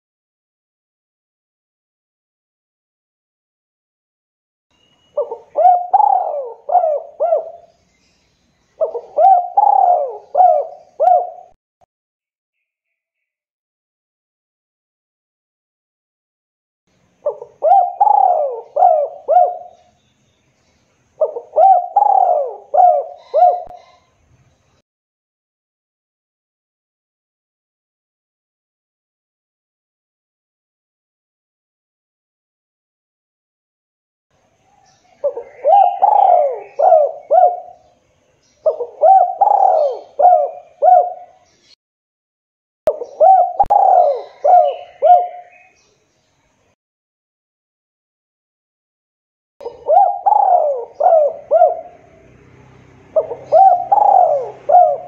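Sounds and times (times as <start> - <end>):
dove cooing: 5.2 - 7.7, 8.8 - 11.6, 17.2 - 19.9, 21.2 - 24.1, 35.2 - 37.9, 38.6 - 41.4, 42.9 - 45.7, 49.6 - 52.4, 53.1 - 55.0.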